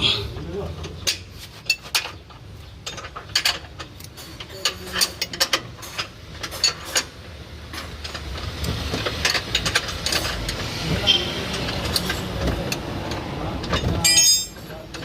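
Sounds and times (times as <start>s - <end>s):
metal tools clinking: 0.8s - 7.1s, 9.0s - 10.7s, 13.6s - 15.0s.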